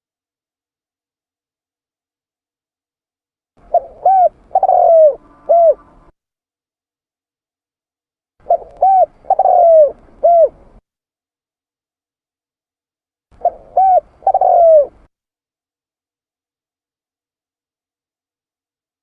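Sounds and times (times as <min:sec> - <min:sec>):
dove cooing: 0:03.6 - 0:06.1, 0:08.4 - 0:10.8, 0:13.4 - 0:15.1.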